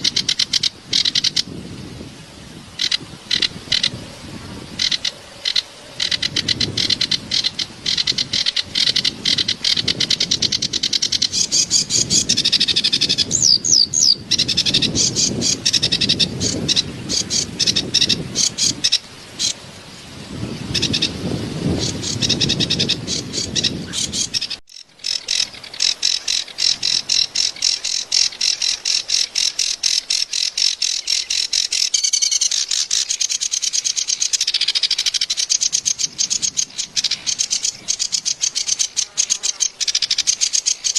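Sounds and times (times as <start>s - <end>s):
reed warbler chattering song: 0.0s - 40.9s.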